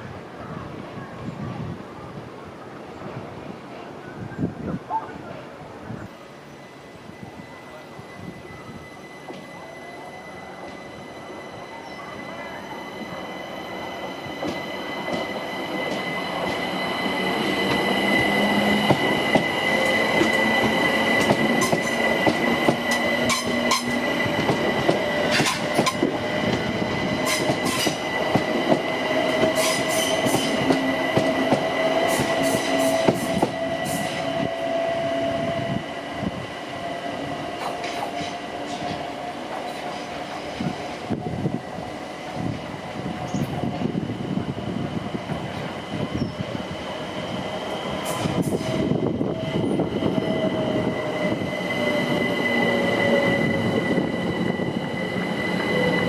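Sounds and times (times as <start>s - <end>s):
train wheel squeal: 6.2s - 56.0s.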